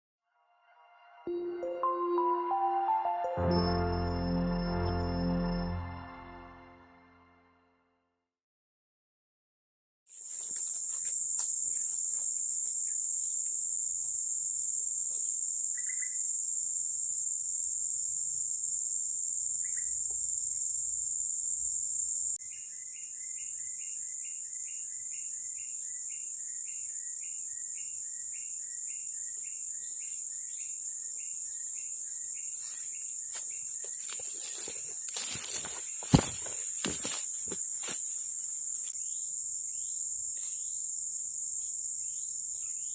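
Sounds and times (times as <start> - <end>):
high-pitched insect chorus: 10.1 - 42.9.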